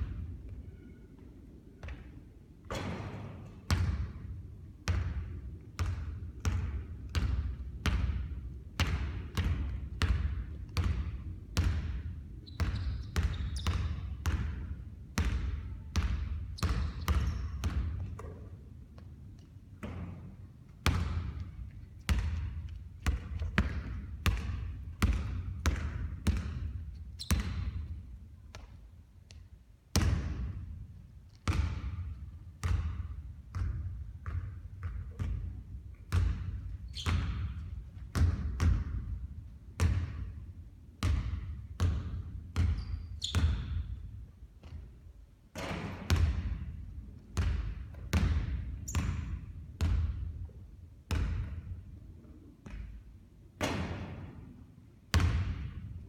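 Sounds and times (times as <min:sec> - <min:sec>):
basketballs bouncing on hard court: 0:02.7 - 0:28.7, 0:31.4 - 0:45.0, 0:45.6 - 0:46.8, 0:47.4 - 0:51.8, 0:52.6 - 0:54.4, 0:55.1 - 0:56.0.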